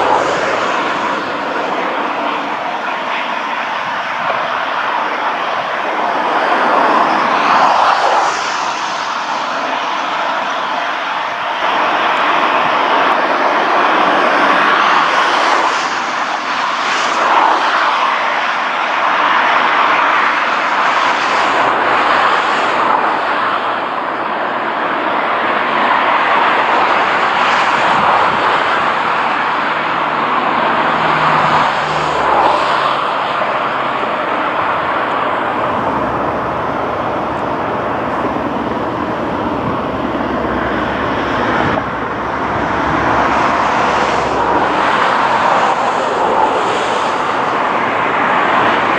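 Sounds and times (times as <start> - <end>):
diesel locomotive engine running: 26.8 - 48.9.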